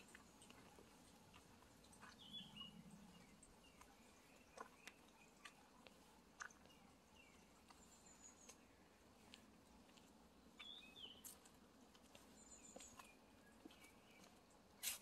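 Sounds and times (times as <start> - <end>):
distant bird chirps: 1.8 - 5.8.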